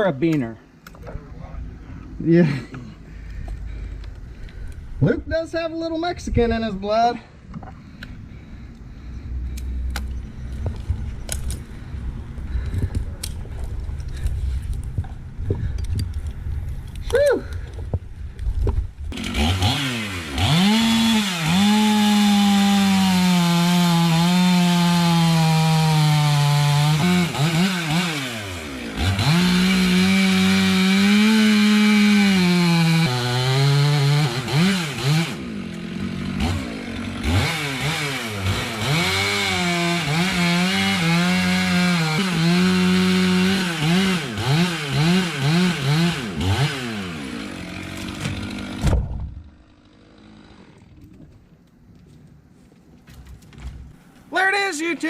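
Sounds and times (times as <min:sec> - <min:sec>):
chainsaw at full throttle: 0:19.1 - 0:50.9.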